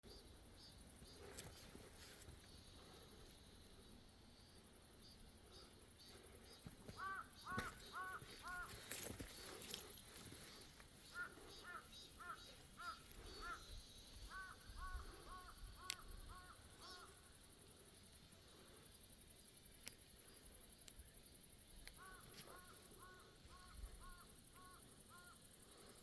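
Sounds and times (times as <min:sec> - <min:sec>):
crow cawing: 0:06.9 - 0:08.9, 0:11.1 - 0:17.2, 0:22.0 - 0:25.4.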